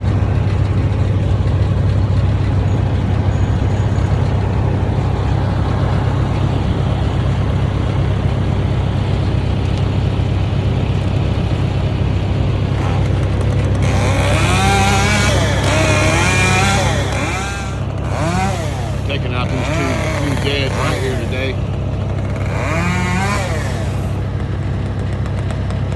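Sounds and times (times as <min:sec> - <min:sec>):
engine running steadily: 0:00.0 - 0:25.9
person speaking: 0:18.3 - 0:21.6.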